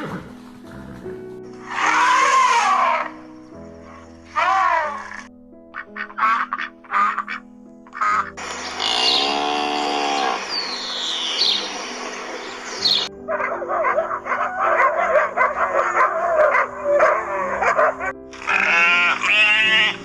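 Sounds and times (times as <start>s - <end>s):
background music: 0.0s - 20.0s
animal calls: 1.6s - 20.0s.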